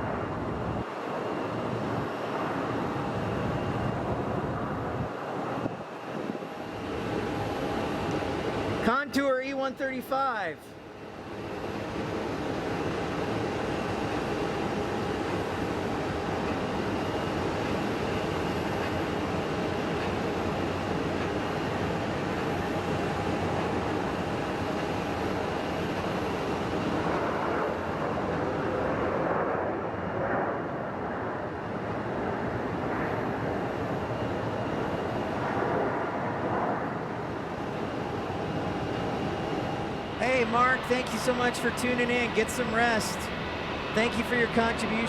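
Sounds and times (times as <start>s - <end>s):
jet engine noise with whine: 0.0s - 45.0s.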